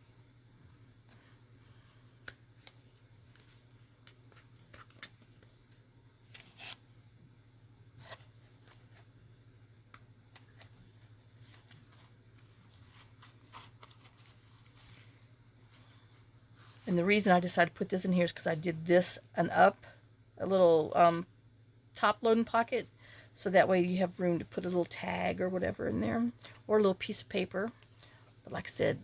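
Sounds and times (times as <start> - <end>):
paper and thread rustling: 10.3 - 16.9.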